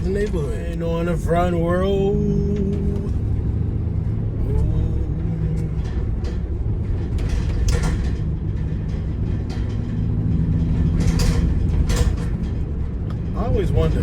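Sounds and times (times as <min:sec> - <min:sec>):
engine and road rumble: 0:00.0 - 0:14.0.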